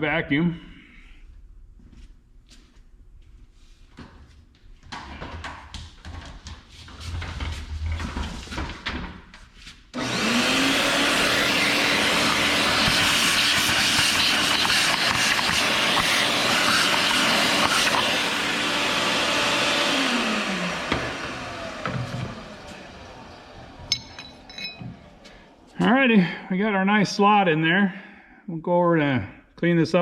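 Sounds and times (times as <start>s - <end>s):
vacuum cleaner running: 10.0s - 25.8s.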